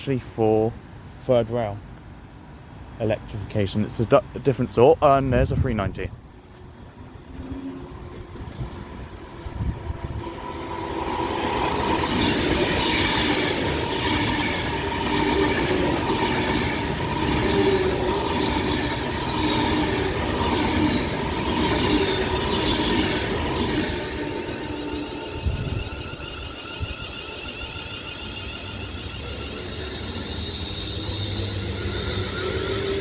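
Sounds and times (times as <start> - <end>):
wheels rushing on rail: 6.1 - 33.0
train clatter: 6.4 - 26.8.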